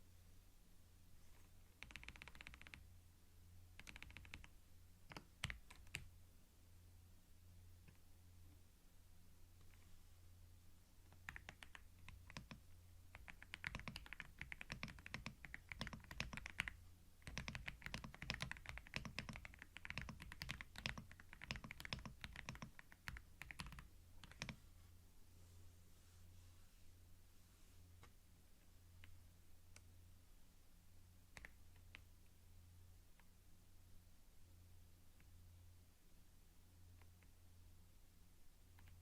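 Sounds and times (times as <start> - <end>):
keyboard typing clicks: 1.8 - 2.8, 3.8 - 4.5, 11.1 - 24.6.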